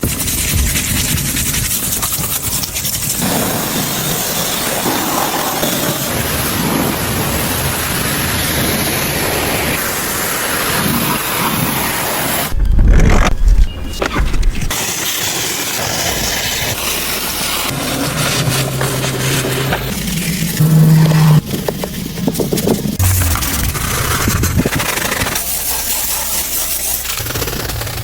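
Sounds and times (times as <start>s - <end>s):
high-pressure water spray hissing: 0.0s - 12.5s, 14.7s - 20.7s, 21.8s - 28.0s.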